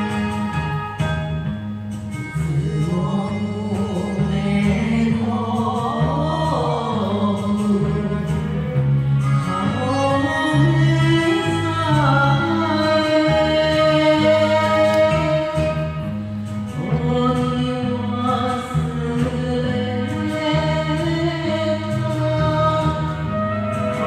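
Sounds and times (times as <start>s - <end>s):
backing track bass line: 0.0s - 24.0s
person singing wavering melody: 2.4s - 16.1s.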